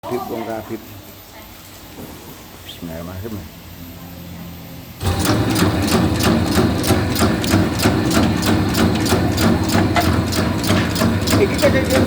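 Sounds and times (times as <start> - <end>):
machine motor humming: 2.4 - 12.0
rapid regular clicking: 5.0 - 12.0.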